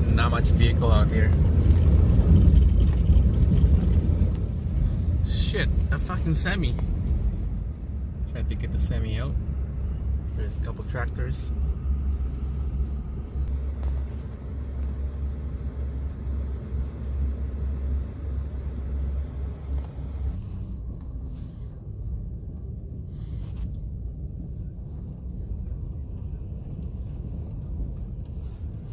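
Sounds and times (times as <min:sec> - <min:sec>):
car engine and tyres rumbling: 0:00.0 - 0:28.9.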